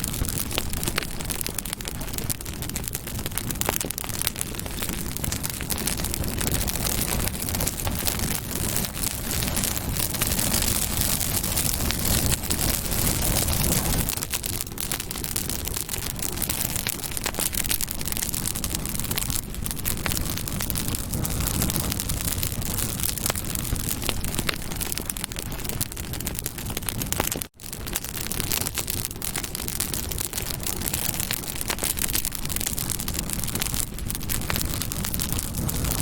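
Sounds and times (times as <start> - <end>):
campfire crackling and popping: 0.0 - 36.0
hiss of flames: 0.0 - 36.0.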